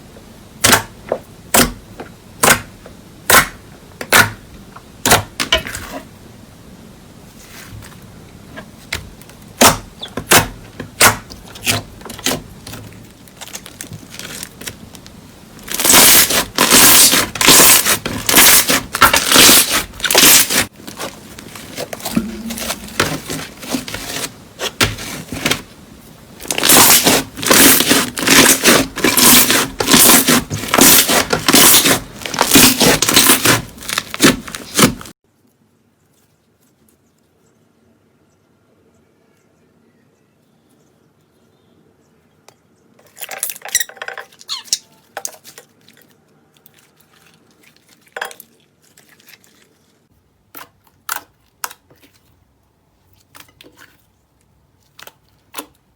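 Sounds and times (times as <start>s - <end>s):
slime popping and crackling: 11.0s - 23.7s, 26.4s - 35.1s.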